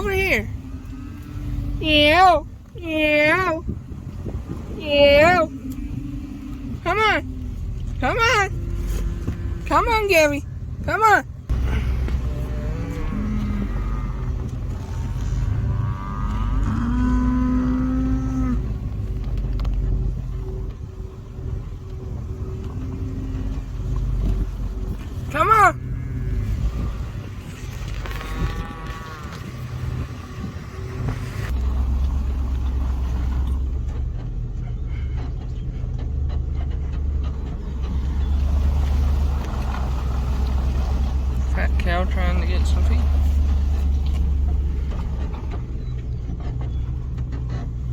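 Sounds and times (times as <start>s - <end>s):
cattle mooing: 0.0s - 3.6s, 4.8s - 10.4s, 11.5s - 19.0s, 22.3s - 33.6s
low rumble: 0.0s - 47.9s.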